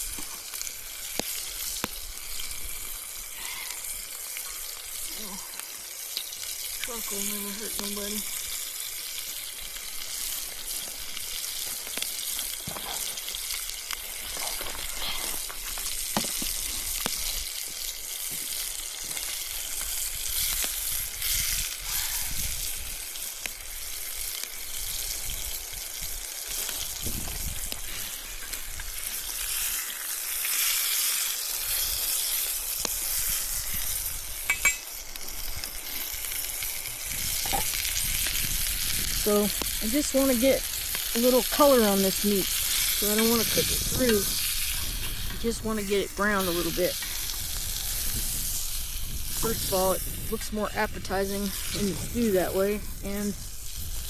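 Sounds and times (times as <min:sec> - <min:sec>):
meat sizzling in hot oil: 0:00.0 - 0:54.0.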